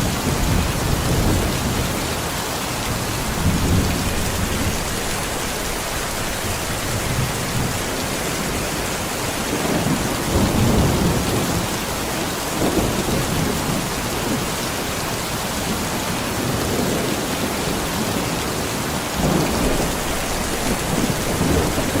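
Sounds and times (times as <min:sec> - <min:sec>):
low thunder rumbles: 0:00.0 - 0:14.6, 0:19.2 - 0:22.0
heavy rain falling: 0:00.0 - 0:22.0.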